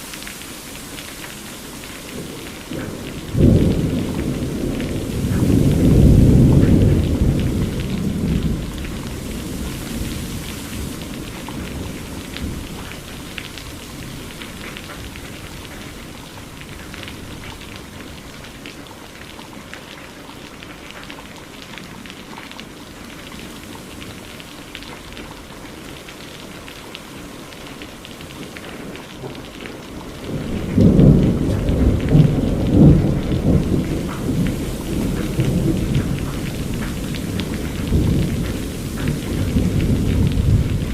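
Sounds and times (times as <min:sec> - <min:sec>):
rain pattering: 0:00.0 - 0:40.9
thunder rumbling: 0:01.6 - 0:18.6, 0:29.0 - 0:40.9.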